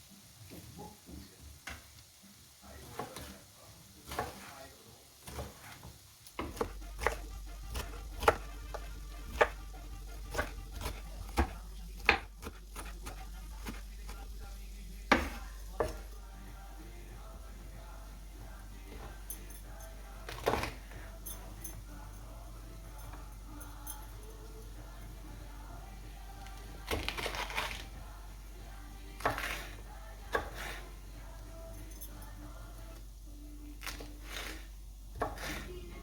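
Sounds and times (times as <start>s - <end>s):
steady low hum: 6.5s - 26.9s, 27.8s - 36.0s.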